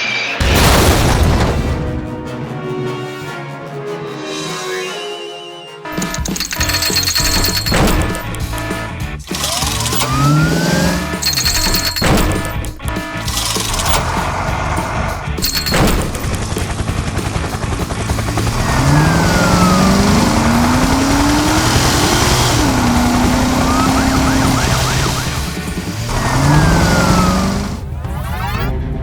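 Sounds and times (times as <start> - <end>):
background music: 0.0 - 29.0
engine revving: 6.0 - 28.8.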